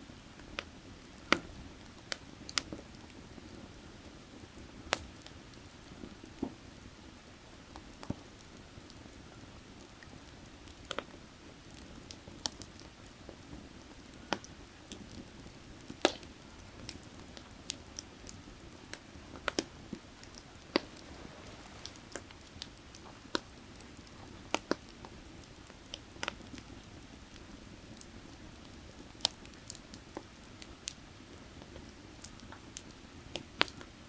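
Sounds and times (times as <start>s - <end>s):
firewood crackling and popping: 0.1s - 34.0s
creek water rushing: 20.4s - 22.3s.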